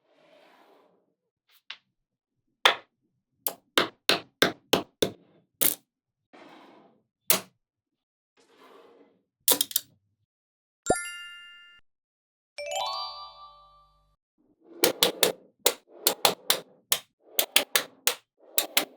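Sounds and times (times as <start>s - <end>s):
magnetic balls clicking together: 14.8s - 18.9s.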